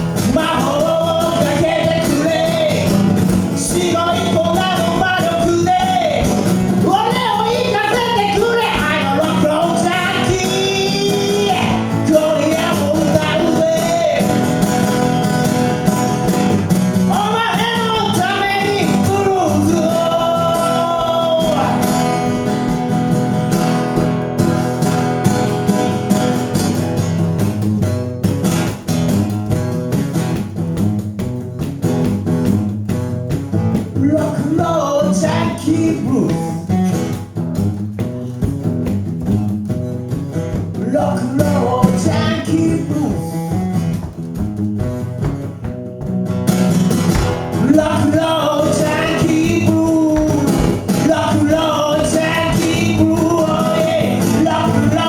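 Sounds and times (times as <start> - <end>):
guitar picking: 0.0 - 55.0
person singing: 0.2 - 15.9, 17.0 - 23.1, 34.0 - 36.7, 40.8 - 43.7, 47.6 - 55.0.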